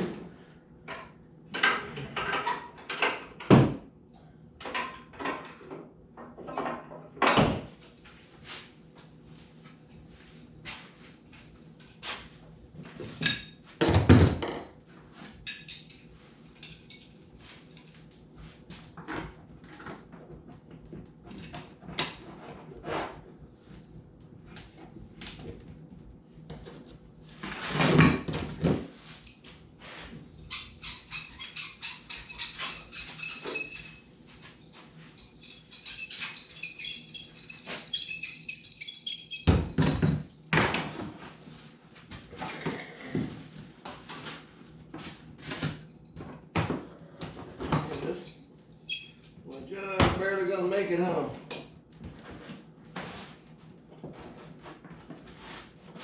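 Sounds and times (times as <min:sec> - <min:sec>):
dense rattle with ringing tones: 0:34.7 - 0:39.8.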